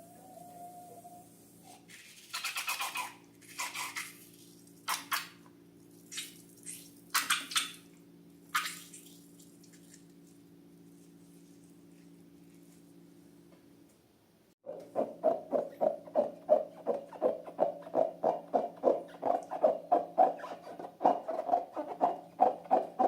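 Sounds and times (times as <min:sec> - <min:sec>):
wet slime squelches: 0:01.8 - 0:12.9
steady low hum: 0:03.1 - 0:21.0.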